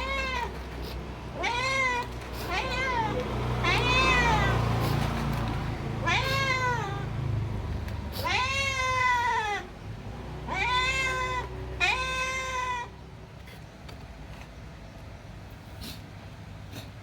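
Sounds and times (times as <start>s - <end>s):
cat meowing: 0.0s - 5.1s, 5.9s - 7.2s, 8.1s - 9.7s, 10.5s - 13.0s.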